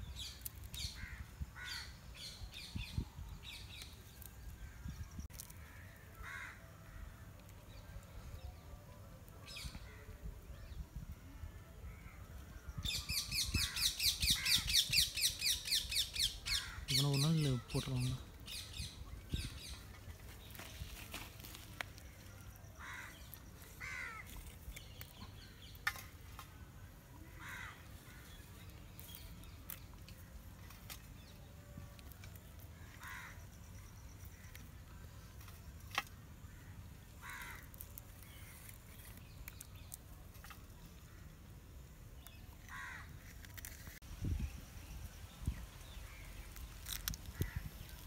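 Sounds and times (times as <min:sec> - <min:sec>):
bird cawing faintly: 0:04.6 - 0:07.5, 0:22.8 - 0:24.5, 0:27.2 - 0:28.5, 0:32.8 - 0:34.7, 0:36.0 - 0:39.2, 0:42.6 - 0:43.8.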